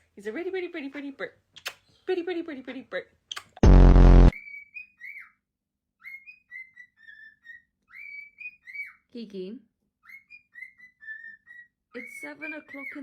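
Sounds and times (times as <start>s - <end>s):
loud harsh buzz: 3.6s - 4.3s
parrot whistling: 4.3s - 5.4s, 6.0s - 9.0s, 10.0s - 13.0s.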